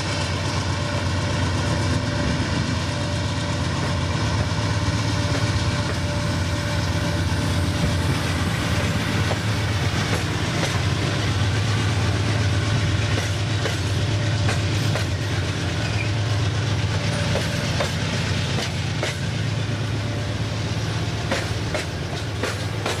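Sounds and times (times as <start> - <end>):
diesel locomotive drone: 0.0 - 23.0
wheels clicking over rail joints: 8.1 - 23.0.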